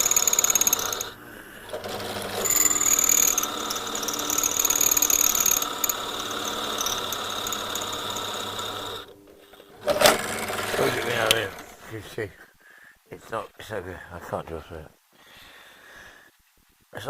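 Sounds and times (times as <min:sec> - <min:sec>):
power drill squealing on steel: 0:00.0 - 0:01.2, 0:02.3 - 0:09.1.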